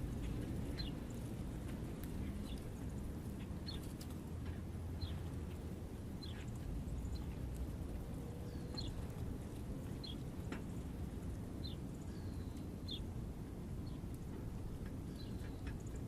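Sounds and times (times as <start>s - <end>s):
small birds chirping: 0.0s - 16.0s
steady low rumble: 0.0s - 16.0s.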